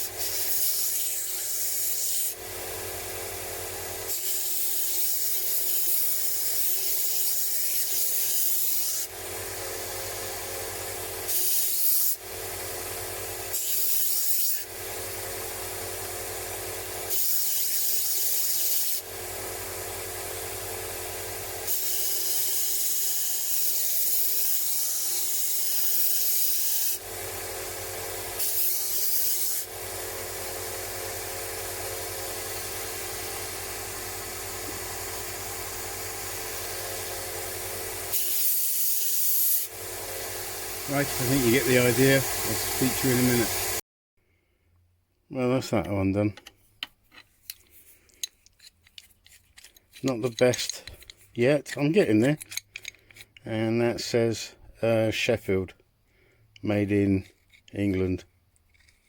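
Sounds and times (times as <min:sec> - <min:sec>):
wrench grinding abrasive hiss: 0:00.0 - 0:43.8, 0:47.1 - 0:54.6
power sanding machine running: 0:39.7 - 0:43.8.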